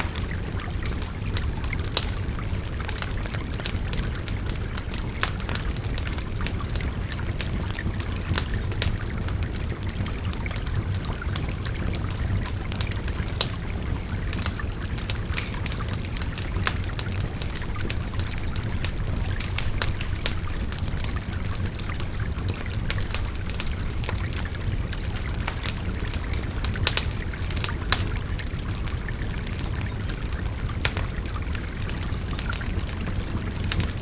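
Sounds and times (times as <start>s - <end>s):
river babbling: 0.0s - 3.1s
wood fire crackling: 0.0s - 34.0s.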